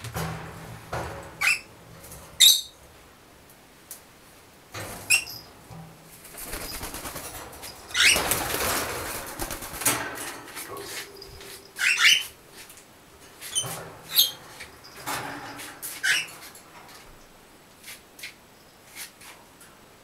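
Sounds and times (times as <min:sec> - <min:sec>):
birds flapping wings: 0:06.2 - 0:10.4.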